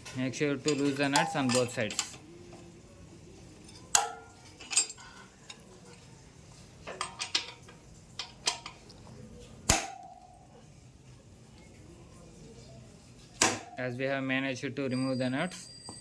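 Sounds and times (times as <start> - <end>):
spanner clinking on metal nuts: 0.0 - 2.3, 3.6 - 5.6, 6.8 - 8.9.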